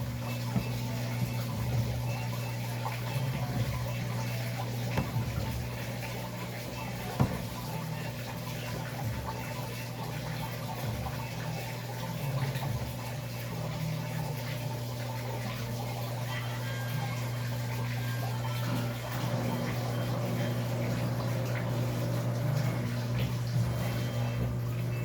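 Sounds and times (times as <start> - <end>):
washing machine running: 0.0 - 25.0
water moving in drum: 0.0 - 25.0.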